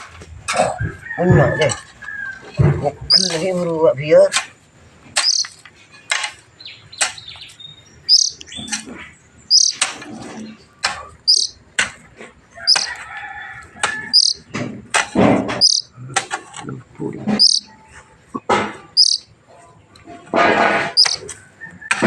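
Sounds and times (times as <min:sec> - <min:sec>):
bird chick chirping: 0:03.0 - 0:03.4, 0:05.2 - 0:05.6, 0:06.6 - 0:11.6, 0:12.6 - 0:13.1, 0:13.8 - 0:14.5, 0:15.5 - 0:16.0, 0:17.3 - 0:19.6, 0:20.9 - 0:21.8.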